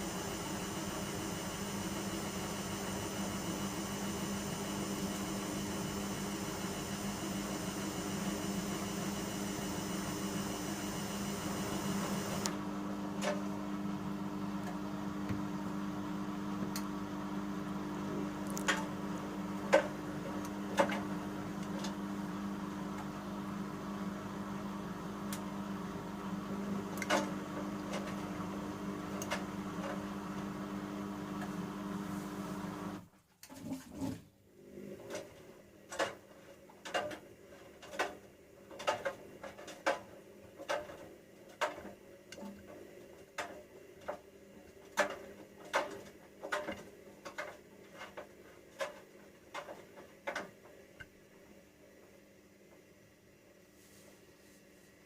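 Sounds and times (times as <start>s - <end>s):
washing machine humming: 0.0s - 36.2s.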